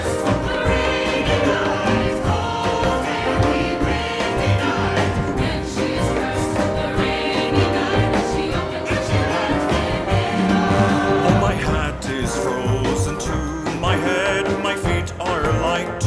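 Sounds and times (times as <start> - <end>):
choir holding long notes: 0.0 - 11.9
folk band playing: 0.0 - 16.0.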